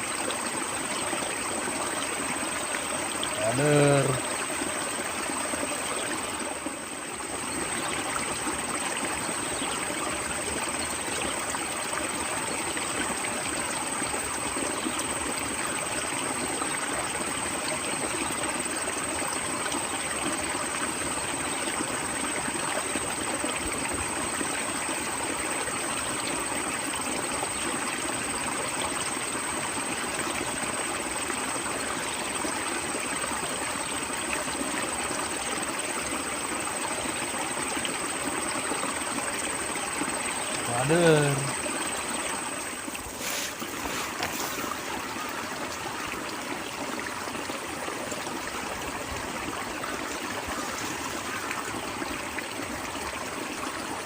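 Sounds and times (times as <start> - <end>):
stream water flowing: 0.0 - 54.0.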